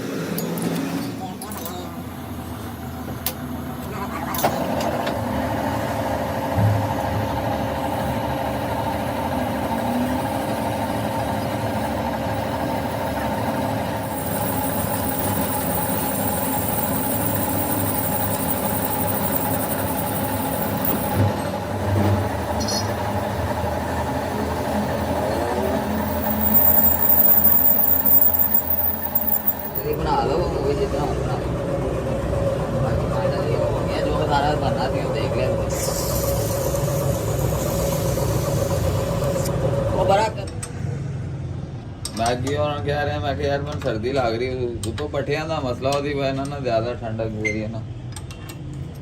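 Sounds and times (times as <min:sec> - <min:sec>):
machinery humming: 0:02.0 - 0:40.1.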